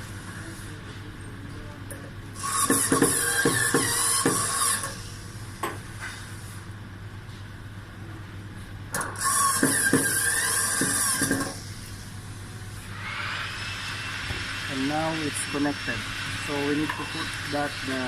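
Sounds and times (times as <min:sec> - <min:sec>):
electric screwdriver whirring: 0:09.2 - 0:11.6.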